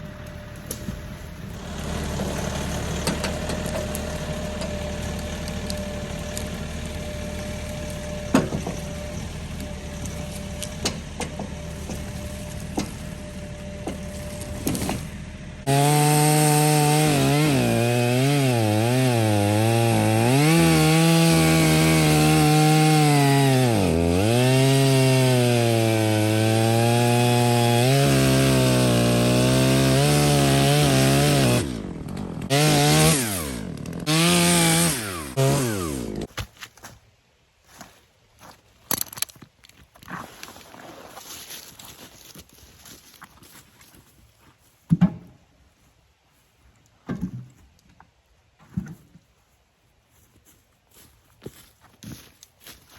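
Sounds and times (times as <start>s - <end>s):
chainsaw cutting wood: 0.0s - 36.4s.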